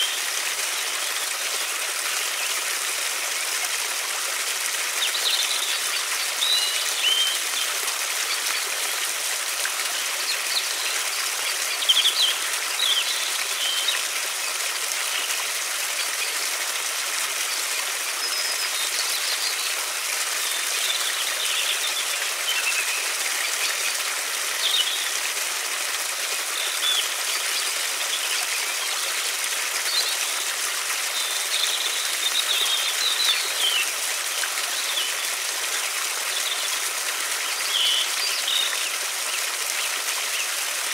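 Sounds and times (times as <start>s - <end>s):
river flowing: 0.0s - 40.9s
small birds chirping: 5.0s - 9.0s, 17.4s - 25.2s.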